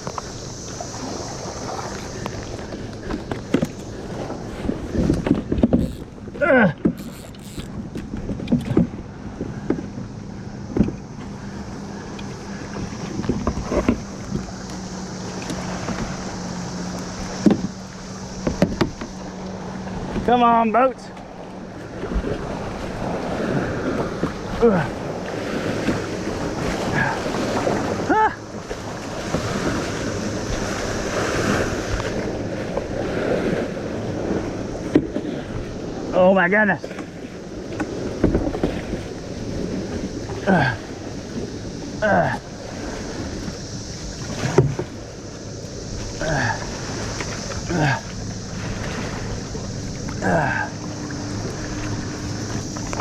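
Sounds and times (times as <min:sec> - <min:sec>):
wind on microphone: 0:00.0 - 0:20.4
steady low hum: 0:00.0 - 0:36.2, 0:36.8 - 0:53.0
water sloshing: 0:00.0 - 0:53.0
short wavering cry: 0:05.8 - 0:07.7
paddle knocking against hull: 0:17.3 - 0:17.8, 0:18.4 - 0:19.2, 0:36.9 - 0:39.1, 0:44.2 - 0:45.0.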